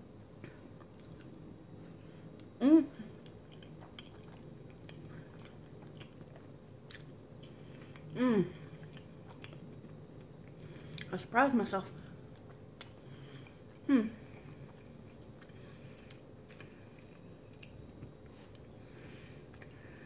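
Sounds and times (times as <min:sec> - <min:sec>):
woman chewing: 0:00.6 - 0:11.1, 0:12.3 - 0:20.0
woman humming: 0:02.6 - 0:03.1, 0:08.2 - 0:08.6, 0:13.8 - 0:14.2.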